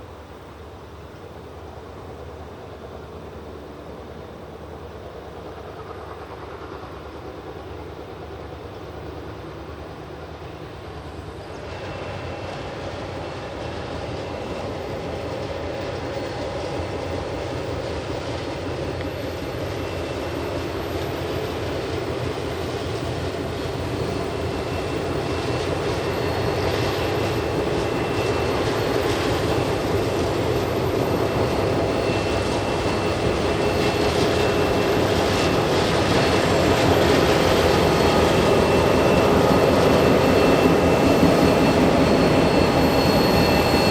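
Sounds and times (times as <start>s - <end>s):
diesel locomotives droning: 0.0s - 43.9s.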